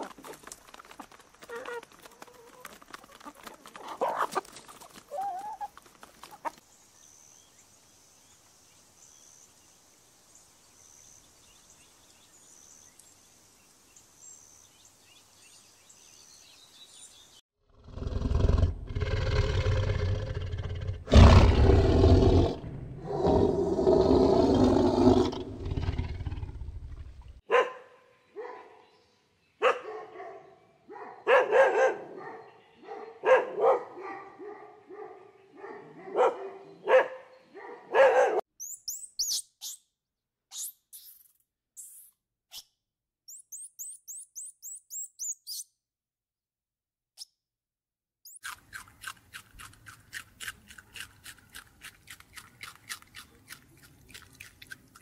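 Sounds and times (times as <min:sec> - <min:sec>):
chickens clucking: 0:00.0 - 0:06.6
deep rough animal roar: 0:17.7 - 0:27.2
dog barking: 0:27.4 - 0:28.9, 0:29.6 - 0:38.5.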